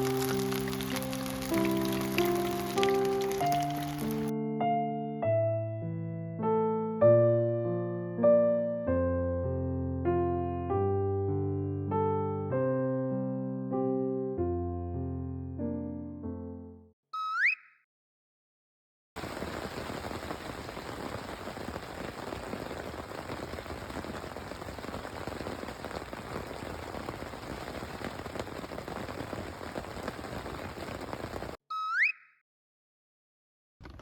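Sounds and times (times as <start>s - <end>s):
steady rain falling: 0.0s - 4.3s, 19.2s - 31.6s.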